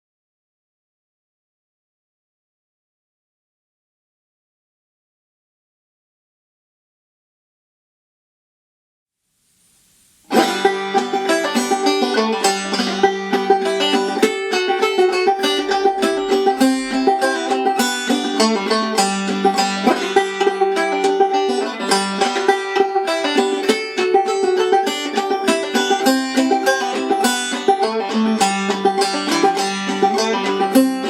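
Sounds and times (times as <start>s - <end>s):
banjo played clawhammer style: 10.3s - 31.0s.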